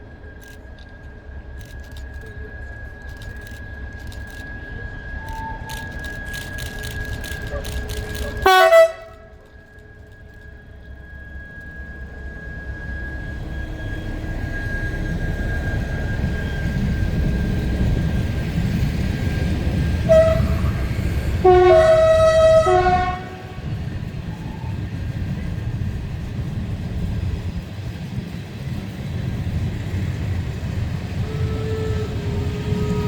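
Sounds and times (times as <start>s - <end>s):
train rumbling: 0.0s - 33.0s
train horn blast: 7.6s - 9.6s, 19.9s - 24.1s, 31.2s - 33.0s.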